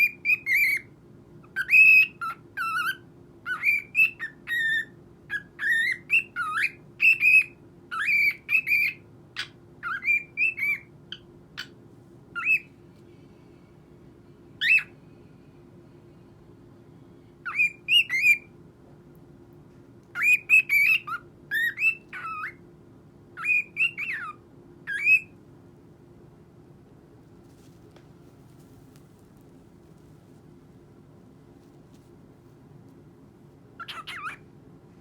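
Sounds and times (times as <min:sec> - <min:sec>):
cockatiel chirping and whistling: 0:00.0 - 0:11.8, 0:12.4 - 0:12.7, 0:14.6 - 0:15.0, 0:17.4 - 0:18.5, 0:20.1 - 0:22.6, 0:23.4 - 0:25.4, 0:33.8 - 0:34.4.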